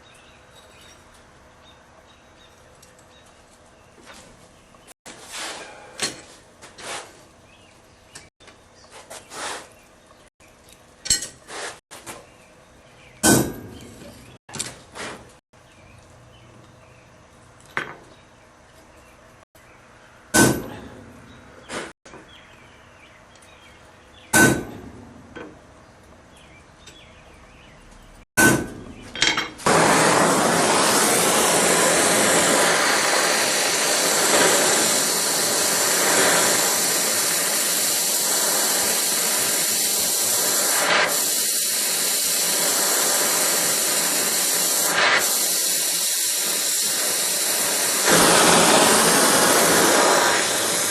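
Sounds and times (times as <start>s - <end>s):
hammer striking metal: 13.2s - 14.0s, 20.3s - 21.1s, 24.3s - 25.2s, 28.4s - 29.6s
loud hissing rush: 29.7s - 50.9s.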